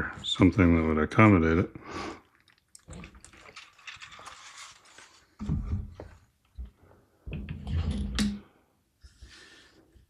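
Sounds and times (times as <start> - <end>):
rustling and scraping of cables: 2.4 - 6.8.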